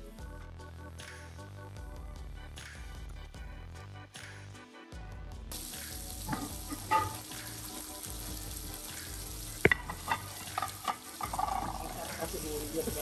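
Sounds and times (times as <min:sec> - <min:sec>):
chicken sizzling in oil: 0:05.5 - 0:13.0.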